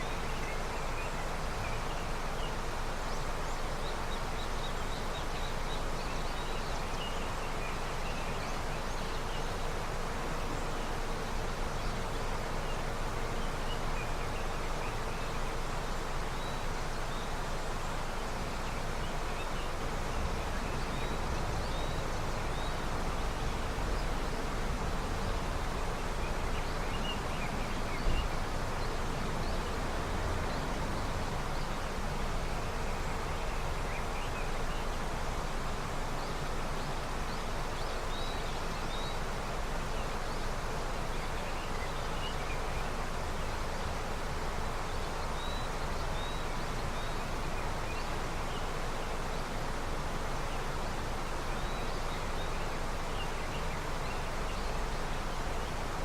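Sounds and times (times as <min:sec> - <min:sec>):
river flowing: 0:00.0 - 0:56.0.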